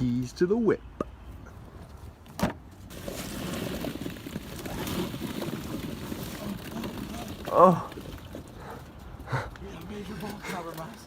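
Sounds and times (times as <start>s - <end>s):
small balls tumbling out of box: 2.9s - 8.6s.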